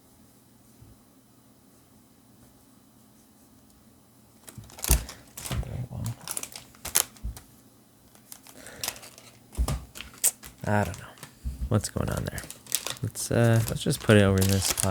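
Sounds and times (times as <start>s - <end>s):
foil wrapper crinkling: 4.4s - 7.5s, 8.1s - 14.9s.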